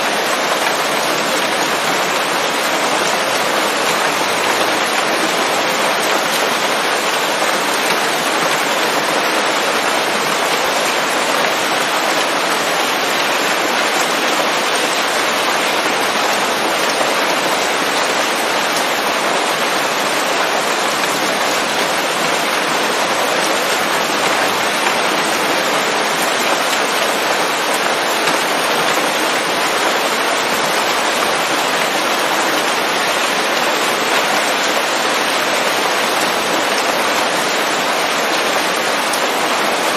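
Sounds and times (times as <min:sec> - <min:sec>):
heavy rain falling on leaves: 0:00.0 - 0:39.9.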